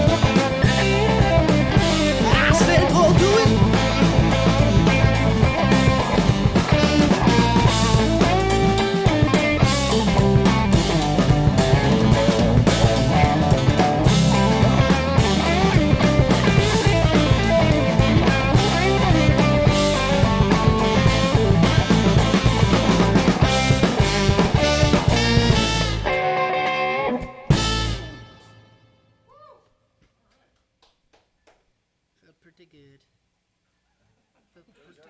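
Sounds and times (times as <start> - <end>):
drum kit beat: 0.0 - 26.2, 27.5 - 28.2
funk band playing: 0.0 - 28.7
bass guitar: 0.0 - 28.8
lead guitar with bent notes: 0.0 - 28.9.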